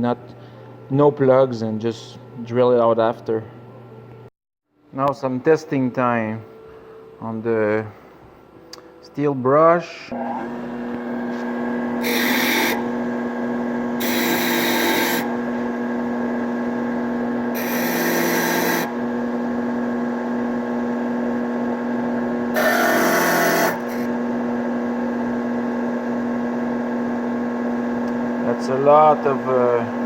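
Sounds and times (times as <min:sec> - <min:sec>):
steady motor hum: 0:10.1 - 0:30.0.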